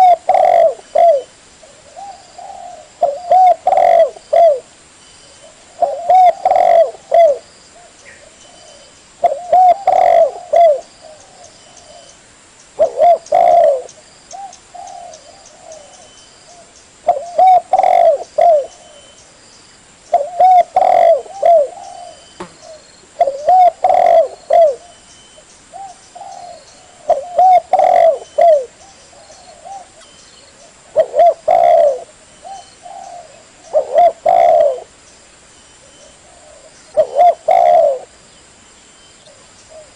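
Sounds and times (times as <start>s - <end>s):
dove cooing: 0.0s - 4.7s, 5.4s - 12.1s, 12.8s - 19.2s, 20.1s - 25.0s, 25.7s - 35.0s, 35.8s - 38.2s, 39.2s - 39.9s.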